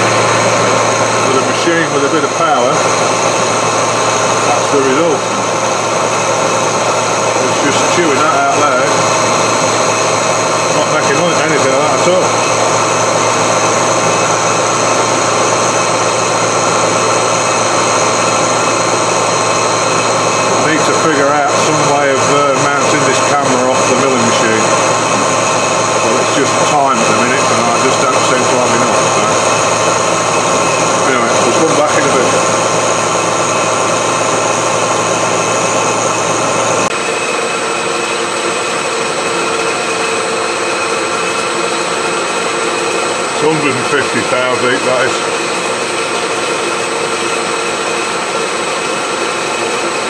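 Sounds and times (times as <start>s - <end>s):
milling machine cutting steel: 0.0s - 50.0s.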